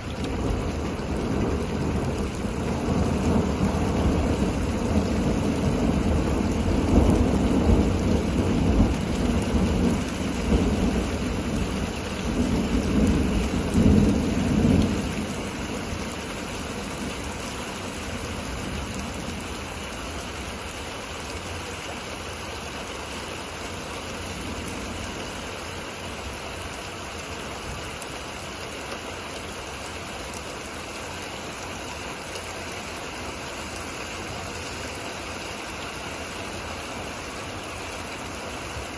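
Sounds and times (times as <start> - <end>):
steady rain: 0.0 - 38.9
thunder rumbling: 0.1 - 19.6.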